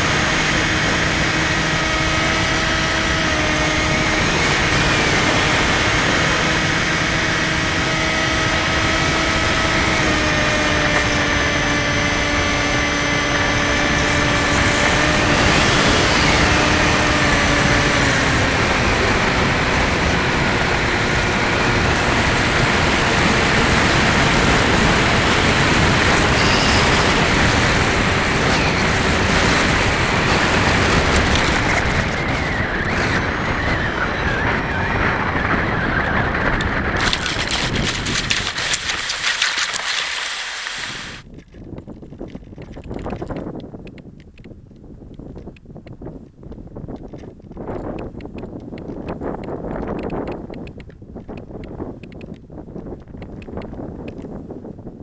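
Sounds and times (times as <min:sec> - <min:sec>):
electric motor and propeller whine: 0:00.0 - 0:41.2
wind rush: 0:00.0 - 0:43.4.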